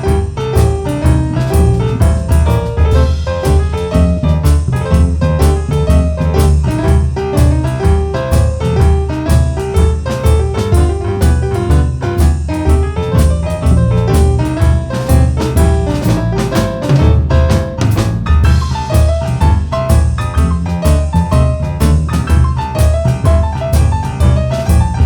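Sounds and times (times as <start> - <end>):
boogie-woogie piano: 0.0 - 25.0
drum kit strokes: 0.0 - 25.0.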